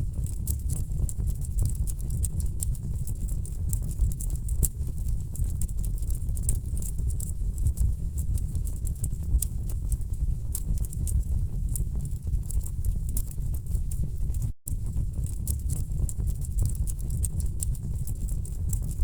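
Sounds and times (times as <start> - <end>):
low rumble of flames: 0.0 - 19.0.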